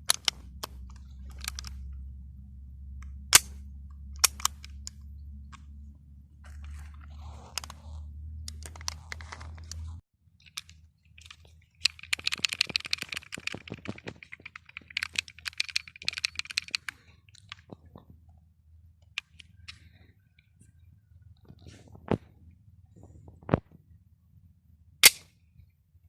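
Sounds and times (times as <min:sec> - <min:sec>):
pistol metallic clicks and rattles: 0:00.0 - 0:01.9, 0:03.0 - 0:05.0, 0:08.4 - 0:18.0, 0:19.0 - 0:19.9
low hum: 0:00.0 - 0:26.0.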